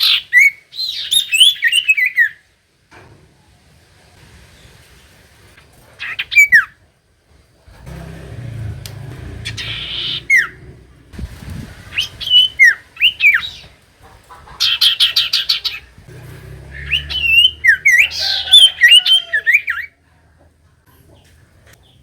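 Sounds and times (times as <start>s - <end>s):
bird whistling song: 0.0s - 2.4s, 9.4s - 10.7s, 11.9s - 13.7s, 16.6s - 19.9s
bird rattling call: 7.8s - 19.8s.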